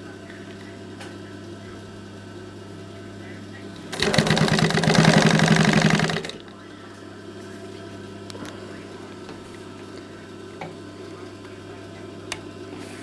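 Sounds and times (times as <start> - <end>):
sewing machine stitching: 3.9 - 6.4.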